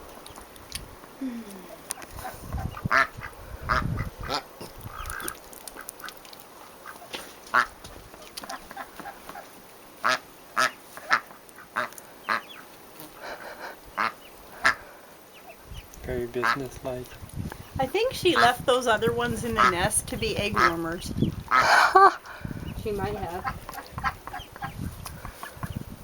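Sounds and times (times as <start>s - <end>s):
duck quacking: 2.2s - 5.3s, 6.8s - 7.8s, 10.0s - 15.0s, 16.4s - 16.7s, 18.2s - 22.1s, 23.0s - 25.7s.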